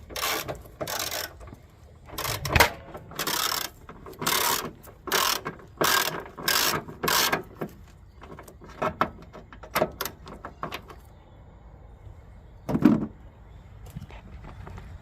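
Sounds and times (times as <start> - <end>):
ratchet wrench clicking: 0.1 - 1.5, 2.2 - 7.5.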